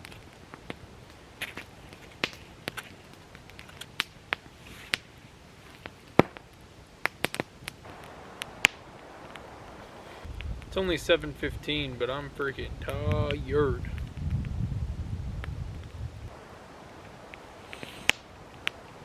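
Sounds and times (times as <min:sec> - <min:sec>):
soft rustles: 0:00.0 - 0:06.4
dry wood cracking and popping: 0:00.0 - 0:11.5, 0:12.5 - 0:14.6, 0:16.8 - 0:19.0.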